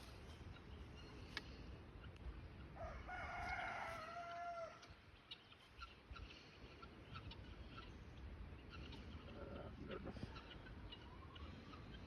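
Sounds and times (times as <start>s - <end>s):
rooster crowing: 2.8s - 4.8s.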